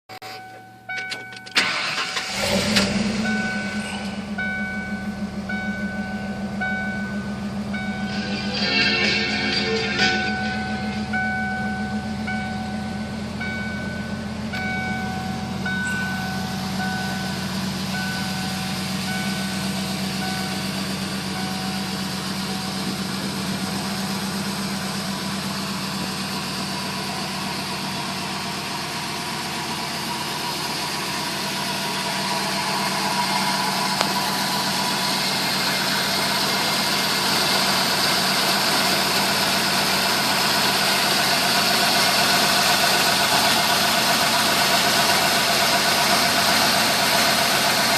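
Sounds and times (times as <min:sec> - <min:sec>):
truck engine idling: 0:00.2 - 0:47.9
short electronic chime: 0:03.2 - 0:22.8.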